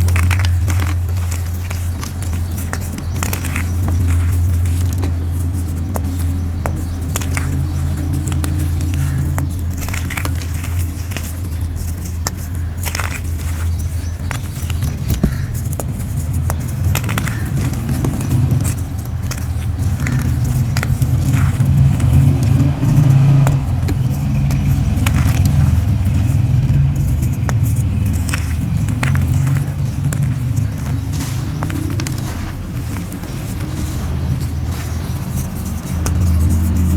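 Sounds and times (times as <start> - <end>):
chalk crunching and crumbling: 0.0 - 36.9
low heavy rumble: 15.1 - 36.9.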